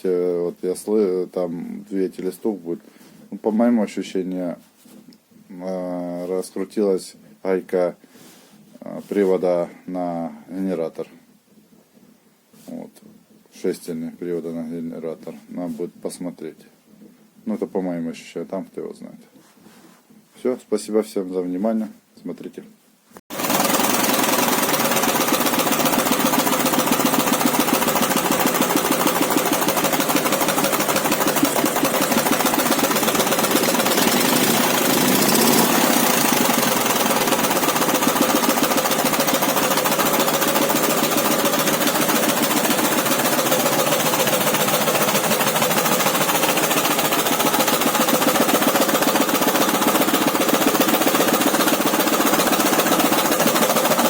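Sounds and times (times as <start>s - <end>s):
motorcycle engine knocking: 23.3s - 54.0s.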